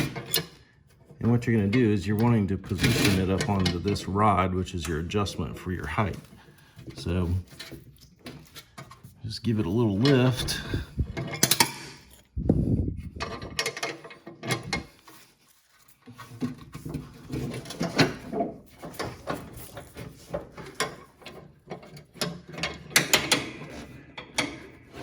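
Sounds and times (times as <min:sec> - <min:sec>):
metallic clicks and clanks: 0:09.9 - 0:12.3, 0:13.2 - 0:14.9, 0:16.8 - 0:25.0.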